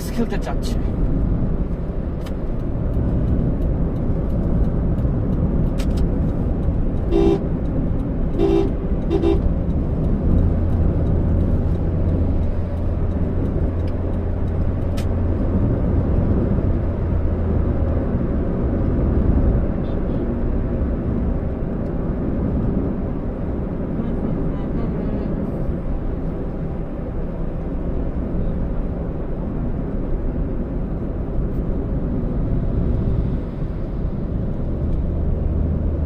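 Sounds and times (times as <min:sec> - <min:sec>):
road and engine noise inside car: 0:00.0 - 0:36.0
car horn honks: 0:07.1 - 0:07.5, 0:08.3 - 0:09.5.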